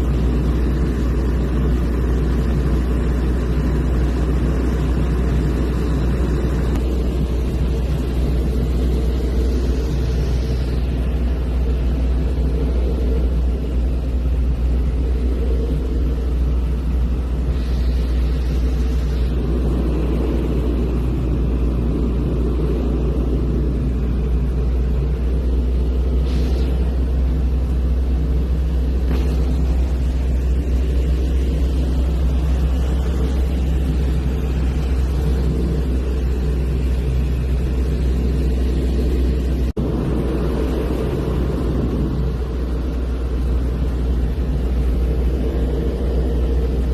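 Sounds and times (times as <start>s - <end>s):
propeller airplane engine droning: 0.0s - 46.9s.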